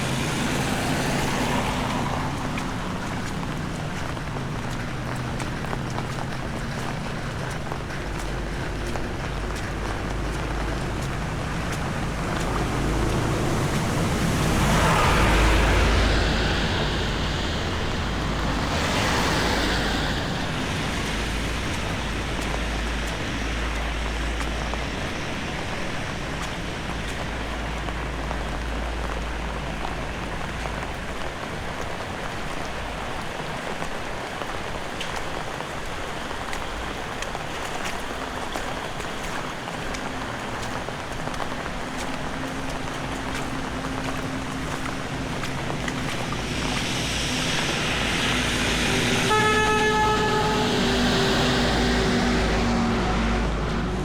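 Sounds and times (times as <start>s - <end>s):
low rumble: 0.0s - 25.0s, 43.0s - 54.0s
steady rain hiss: 0.0s - 54.0s.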